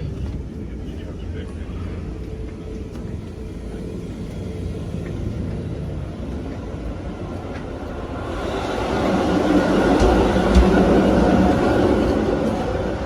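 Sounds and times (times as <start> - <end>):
train rumbling from inside: 0.0 - 13.0.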